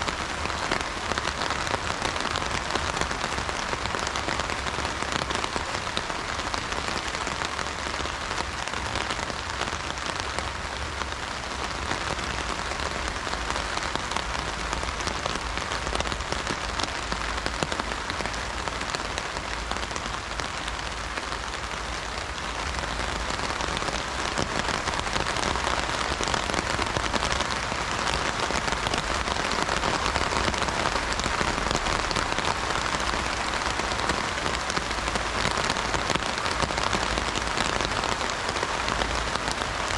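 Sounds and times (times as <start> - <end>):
heavy rain on an umbrella: 0.0 - 39.9.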